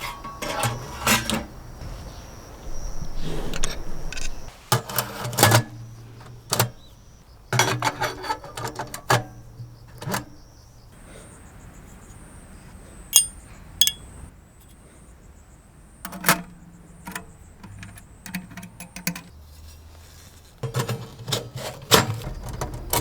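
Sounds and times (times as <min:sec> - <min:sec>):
steel parts clanking and rattling: 0:00.0 - 0:01.5, 0:03.6 - 0:06.8, 0:07.6 - 0:10.4, 0:13.2 - 0:14.1.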